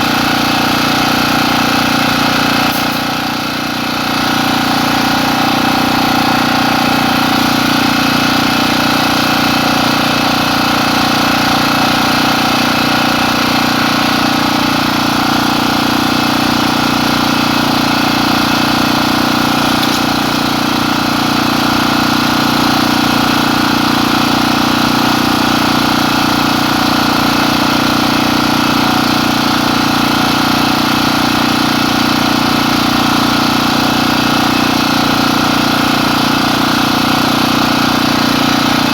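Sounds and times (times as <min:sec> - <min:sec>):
engine droning: 0:02.2 - 0:15.0.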